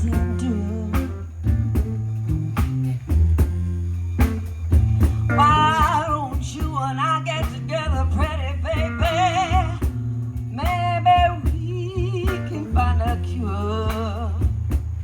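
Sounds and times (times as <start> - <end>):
lead notes with vibrato: 0.0 - 9.9
bass line: 0.0 - 15.0
blues band playing: 0.0 - 15.0
guitar: 0.0 - 15.0.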